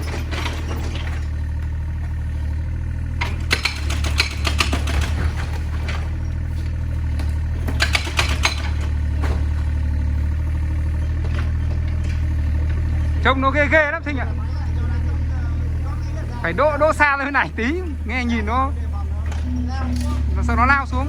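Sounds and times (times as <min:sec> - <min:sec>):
excavator diesel engine running: 0:00.0 - 0:21.0
masonry crashing and cracking: 0:03.1 - 0:14.5.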